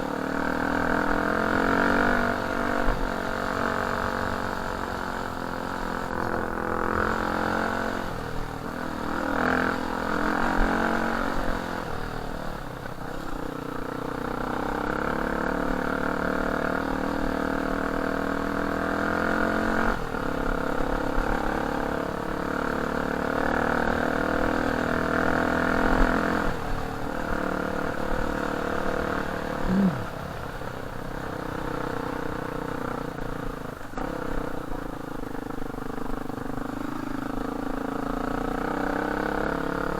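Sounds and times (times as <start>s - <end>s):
dirt bike engine revving: 0.2s - 8.2s, 14.3s - 34.8s.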